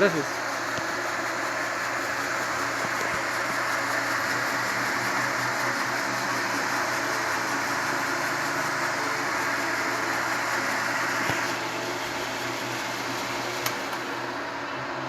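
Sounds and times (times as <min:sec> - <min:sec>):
lathe motor humming: 0:00.0 - 0:15.0.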